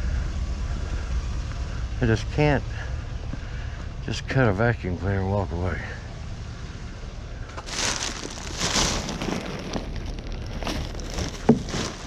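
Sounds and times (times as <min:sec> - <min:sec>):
rustling and crackling of junk: 0:07.4 - 0:12.0.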